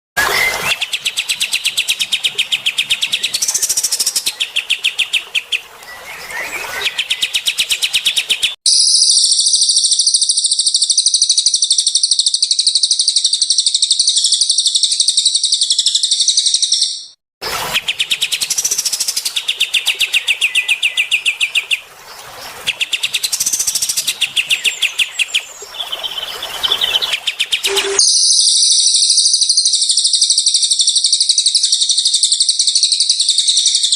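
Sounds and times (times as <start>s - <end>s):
rapid bird chirping: 6.5s - 19.4s, 22.8s - 33.9s
high bird trills: 27.0s - 30.1s.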